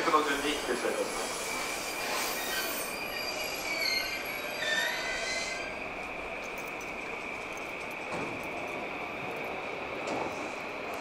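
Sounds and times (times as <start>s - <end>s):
train brakes squealing: 0.0s - 6.8s.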